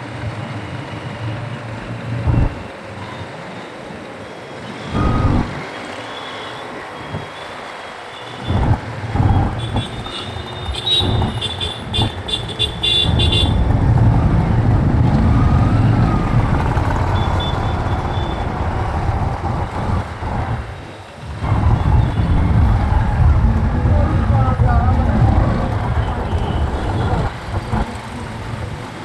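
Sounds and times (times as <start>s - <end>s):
motorcycle engine and wind: 0.0s - 3.7s, 4.9s - 5.6s, 8.4s - 29.0s
rapid high-pitched vehicle beeps: 5.0s - 5.6s.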